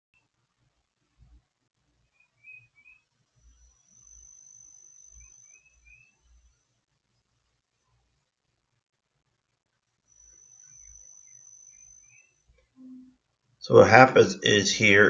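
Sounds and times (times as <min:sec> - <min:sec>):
thin high steady tone: 0:02.4 - 0:06.7, 0:10.0 - 0:15.0.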